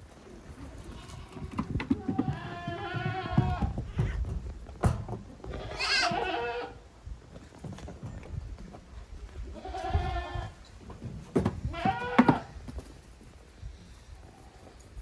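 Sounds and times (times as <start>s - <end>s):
goat kids bleating: 0.8s - 4.2s, 5.4s - 6.8s, 9.5s - 10.6s, 11.7s - 12.6s.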